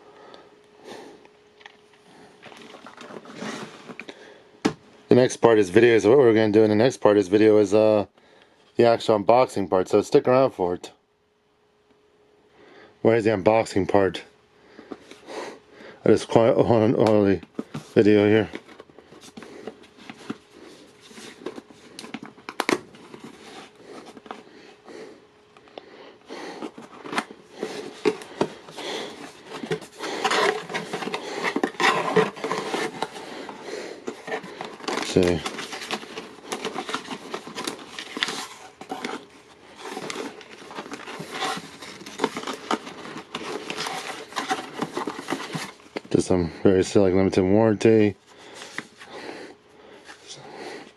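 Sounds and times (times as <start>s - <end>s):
paper and plastic crinkling: 1.6s - 4.4s, 16.2s - 24.7s, 26.4s - 47.2s, 48.3s - 50.8s.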